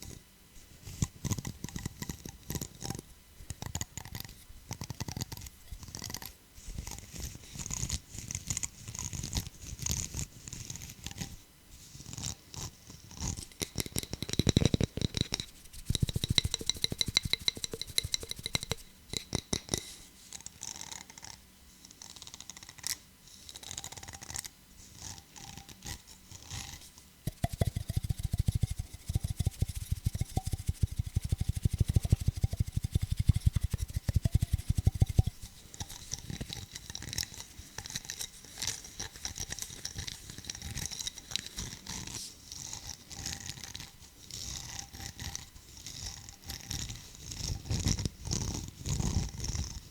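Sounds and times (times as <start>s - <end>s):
fingers tapping on hard objects: 13.7s - 19.8s, 27.3s - 38.0s.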